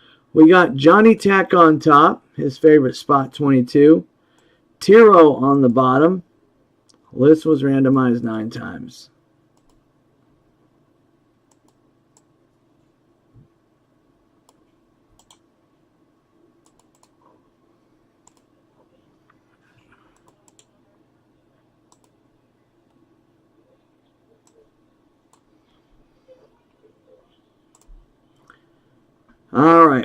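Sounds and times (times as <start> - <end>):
keyboard typing clicks: 9.6 - 9.8, 11.5 - 12.3, 14.4 - 15.4, 16.6 - 17.2, 18.2 - 18.5, 20.1 - 20.8, 21.9 - 22.2, 27.7 - 28.0.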